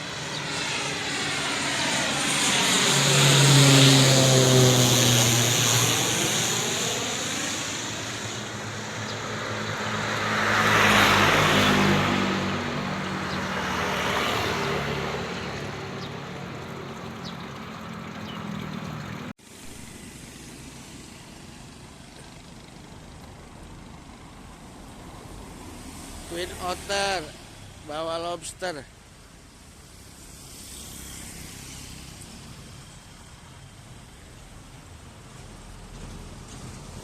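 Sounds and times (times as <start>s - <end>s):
turboprop aircraft landing: 0.0s - 37.0s.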